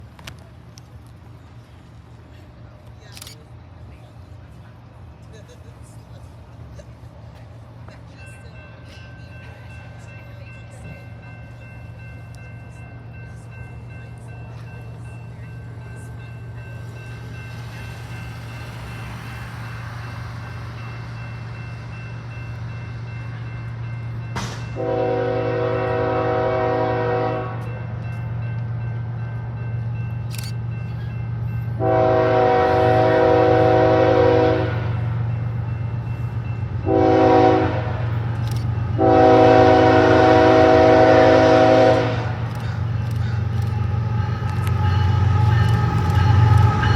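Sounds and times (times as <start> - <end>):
diesel locomotive engine rumble: 0.0 - 46.9
train air horn blasts: 24.8 - 27.6, 31.8 - 35.0, 36.8 - 38.1, 38.9 - 42.5.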